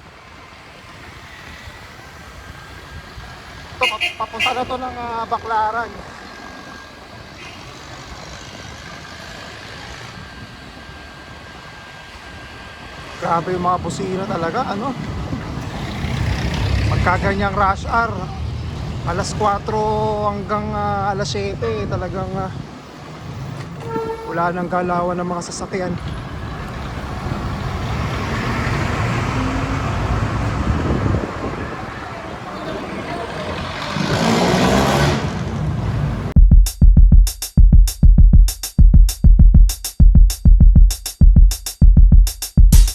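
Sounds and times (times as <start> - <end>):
vehicle engines and road rumble: 0.0 - 36.4
electronic music with drum beat: 36.4 - 42.9.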